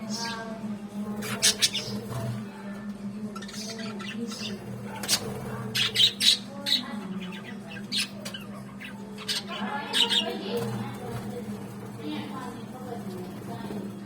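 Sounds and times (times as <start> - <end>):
budgerigars chirping and squawking: 0.0 - 2.4, 3.3 - 11.4.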